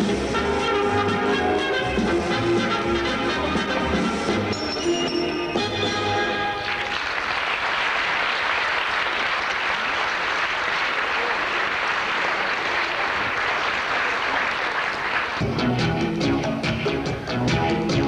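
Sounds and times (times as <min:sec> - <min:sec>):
audience applauding: 0:06.4 - 0:15.5.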